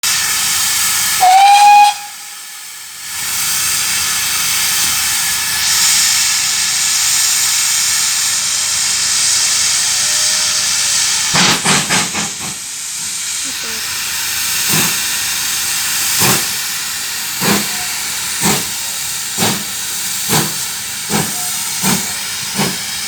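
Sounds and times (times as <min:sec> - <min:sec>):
sharp steam bursts: 0:00.0 - 0:23.0
steam locomotive hissing: 0:00.0 - 0:23.0
steam whistle blast: 0:00.1 - 0:02.6, 0:17.4 - 0:18.2, 0:21.1 - 0:22.8.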